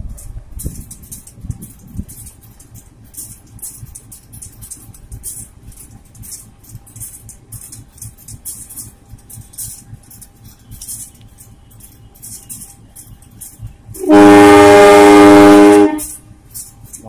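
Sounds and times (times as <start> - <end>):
train horn blast: 14.0 - 16.2.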